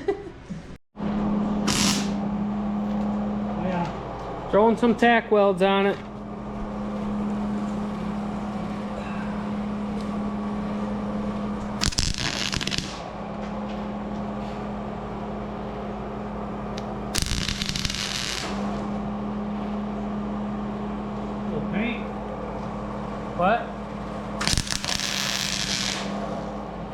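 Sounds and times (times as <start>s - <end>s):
steady low hum: 0.0s - 26.9s
welding arc crackle: 1.6s - 2.2s, 11.6s - 13.1s, 16.8s - 19.0s, 24.4s - 26.2s.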